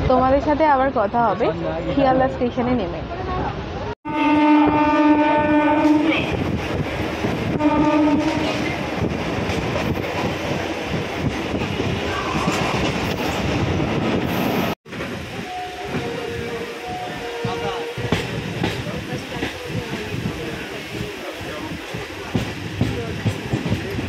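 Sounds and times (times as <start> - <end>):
train rumble and rail clatter: 0.0 - 24.0
train horn blasts: 4.0 - 6.4, 7.5 - 8.7, 15.4 - 18.3.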